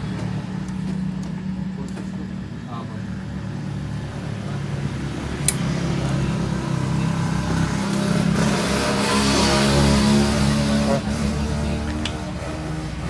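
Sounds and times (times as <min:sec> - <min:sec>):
sharp click: 0:05.4 - 0:05.7.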